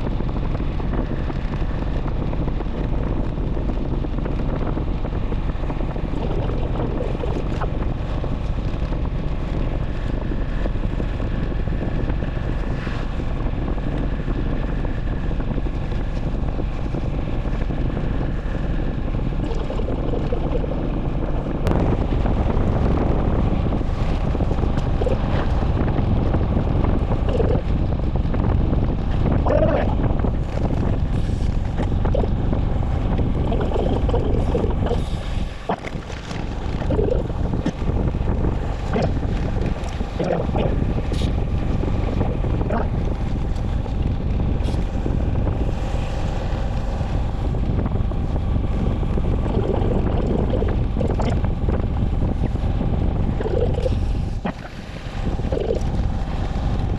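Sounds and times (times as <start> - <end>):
motorcycle low rumble: 0.0 - 56.9
wind buffeting microphone: 0.0 - 56.9.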